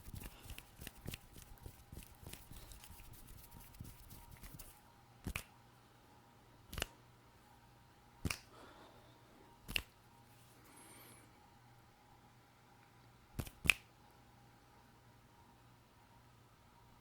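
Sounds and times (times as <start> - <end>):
sharp hand clicks: 6.7 - 7.0, 8.2 - 8.5, 9.7 - 9.9, 13.4 - 13.9.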